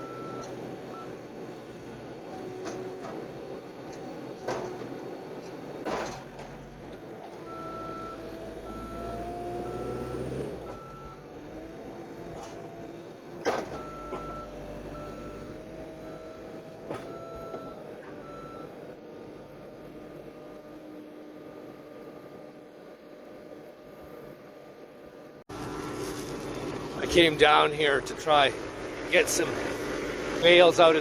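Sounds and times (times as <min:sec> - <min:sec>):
engine working under load: 0:00.0 - 0:31.0.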